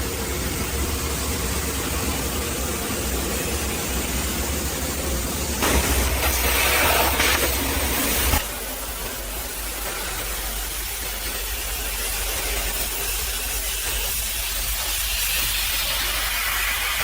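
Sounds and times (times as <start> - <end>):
pressure washer spraying water: 0.0 - 17.0.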